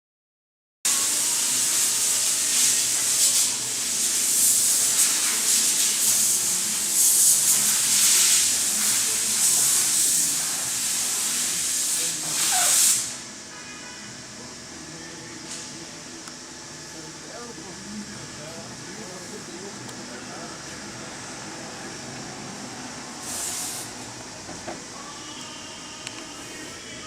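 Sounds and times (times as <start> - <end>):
compressed air hissing: 0.9 - 13.3, 23.1 - 24.2.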